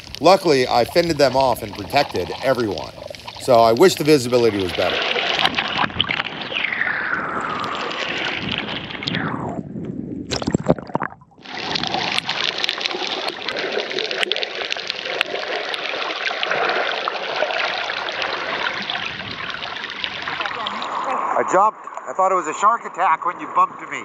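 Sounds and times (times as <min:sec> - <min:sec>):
rush of water: 0:00.0 - 0:09.6, 0:10.3 - 0:24.0
water sloshing and gurgling: 0:00.0 - 0:24.0
knocks and splashes: 0:04.7 - 0:06.5.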